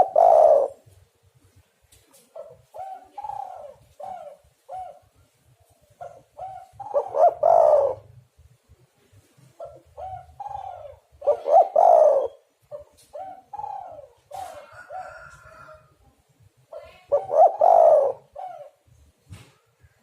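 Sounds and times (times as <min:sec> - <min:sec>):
doves cooing: 0:00.0 - 0:01.0, 0:02.2 - 0:08.3, 0:09.4 - 0:16.0, 0:16.8 - 0:19.0.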